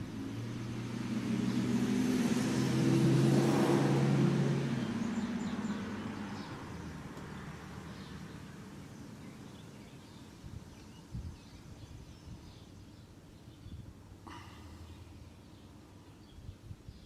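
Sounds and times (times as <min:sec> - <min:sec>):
passing car engine: 0:00.0 - 0:09.8.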